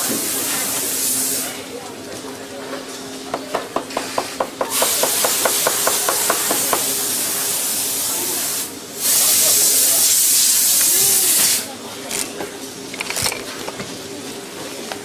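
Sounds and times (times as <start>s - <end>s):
loud hissing spray: 0.0s - 1.6s, 4.7s - 11.7s.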